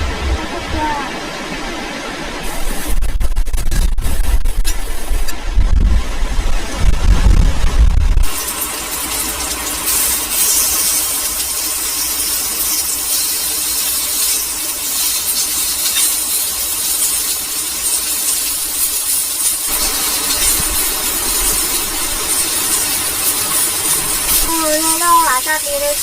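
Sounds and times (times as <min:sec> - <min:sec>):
wind rumbling: 0:00.0 - 0:12.0, 0:19.6 - 0:26.0
heavy rain falling: 0:00.0 - 0:26.0.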